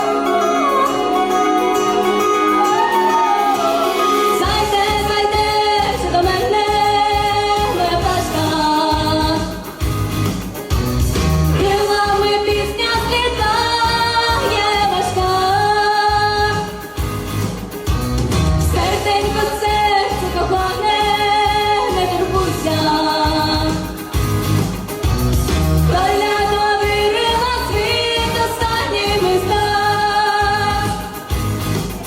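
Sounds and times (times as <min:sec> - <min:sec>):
woman singing: 0:00.0 - 0:09.8, 0:11.5 - 0:17.0, 0:18.6 - 0:24.2, 0:25.9 - 0:31.4
pop backing track with bass and beat: 0:00.0 - 0:32.0.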